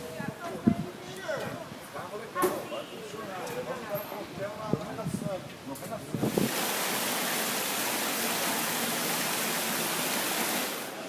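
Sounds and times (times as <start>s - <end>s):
rushing falling water: 6.2s - 11.0s.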